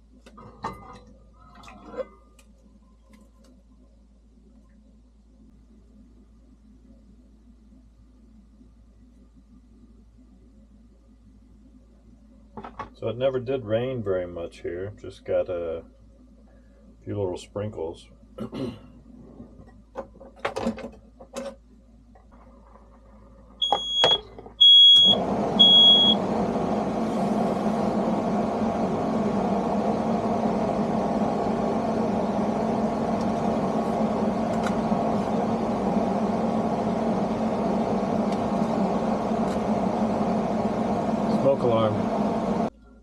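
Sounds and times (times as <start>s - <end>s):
mechanical hum: 0.0s - 43.0s
smoke alarm beeping: 23.6s - 26.2s.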